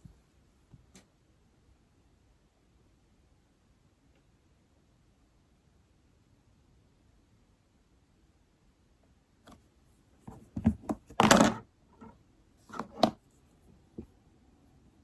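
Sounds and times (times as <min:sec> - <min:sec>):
knocks and thunks on a desk: 0:10.3 - 0:11.6.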